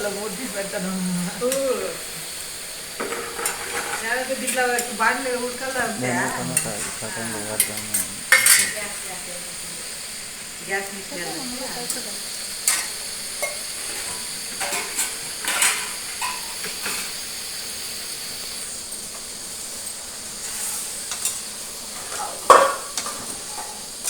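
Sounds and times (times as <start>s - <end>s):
chicken sizzling in a pan: 0.0s - 24.0s
spoon scraping metal pan: 3.0s - 8.9s.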